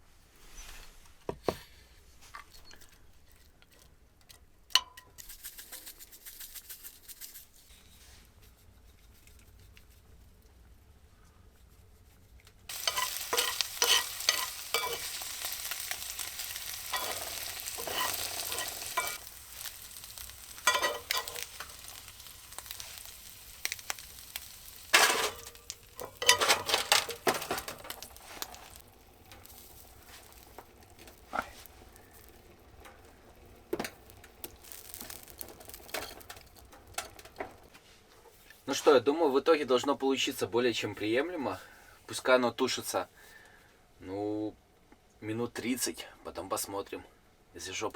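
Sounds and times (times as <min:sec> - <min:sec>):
spoon scraping a pan: 0:12.7 - 0:37.6
food sizzling in a hot pan: 0:12.7 - 0:37.7.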